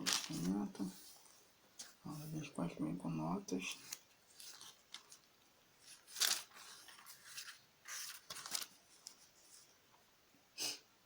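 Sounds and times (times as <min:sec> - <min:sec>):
thin pages rustling: 0:00.0 - 0:02.5, 0:03.6 - 0:09.8.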